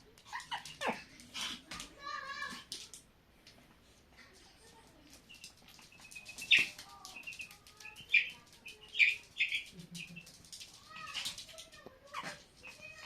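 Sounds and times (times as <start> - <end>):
chicks peeping: 5.2 - 11.4.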